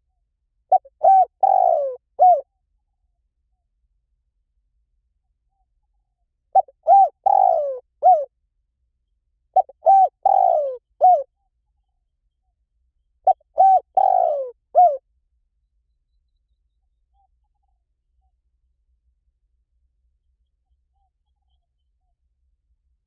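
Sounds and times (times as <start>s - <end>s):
dove cooing: 0.7s - 2.4s, 6.6s - 8.3s, 9.6s - 11.3s, 13.3s - 15.0s.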